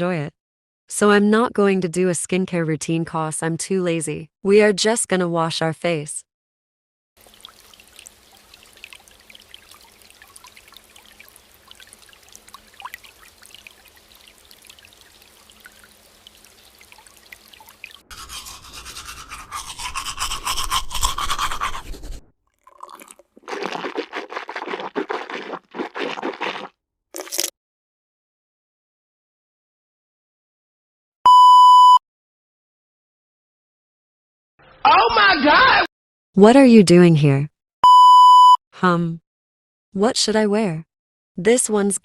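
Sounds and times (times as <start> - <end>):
water running in sink: 7.2 - 27.5
scrubbing: 18.0 - 27.5.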